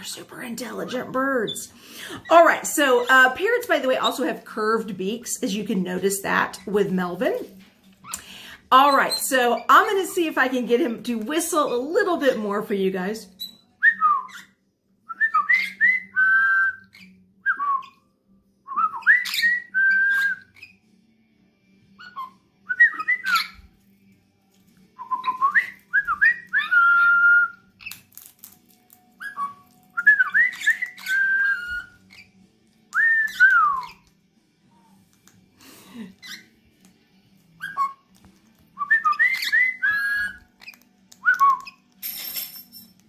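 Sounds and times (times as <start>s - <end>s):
parrot whistling: 13.4s - 18.0s, 18.7s - 20.8s, 22.0s - 23.7s, 25.0s - 28.0s, 29.2s - 32.3s, 33.0s - 34.0s, 36.2s - 36.6s, 37.6s - 38.1s, 38.8s - 41.8s.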